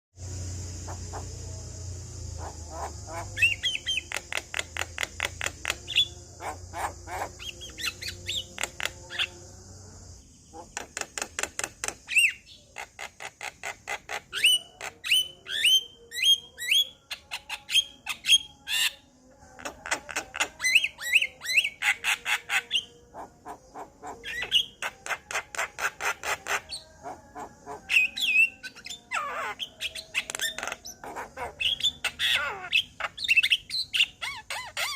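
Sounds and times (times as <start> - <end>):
steady high hiss: 0.2 - 12.1.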